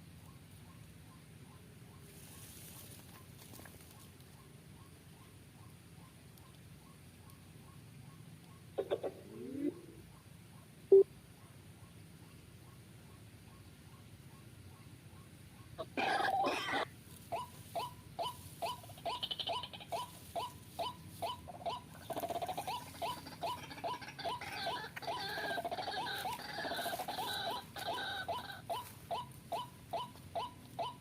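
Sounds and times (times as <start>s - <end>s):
waterhen calling: 8.8s - 10.0s, 15.8s - 31.0s.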